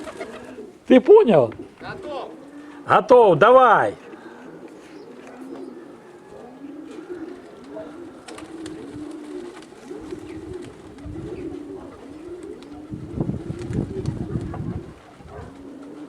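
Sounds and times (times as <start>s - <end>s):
pigeons cooing: 0.0s - 16.0s
wind buffeting microphone: 9.9s - 15.7s.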